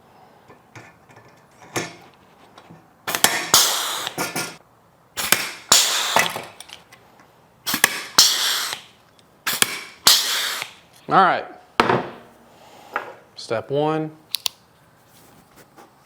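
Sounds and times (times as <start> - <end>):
rivet gun snapping: 14.3 - 14.6.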